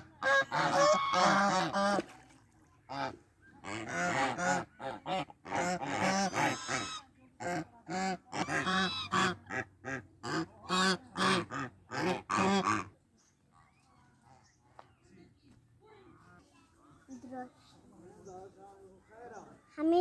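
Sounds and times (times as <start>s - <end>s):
fowl honking: 0.2s - 2.1s, 2.9s - 12.9s.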